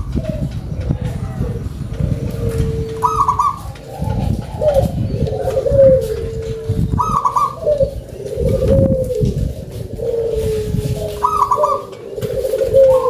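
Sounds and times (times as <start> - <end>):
steady low rumble: 0.0 - 11.5
dove cooing: 0.0 - 13.0.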